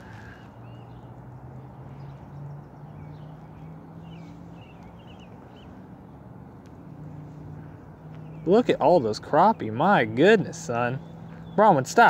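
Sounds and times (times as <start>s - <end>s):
small bird twittering: 0.0s - 5.8s.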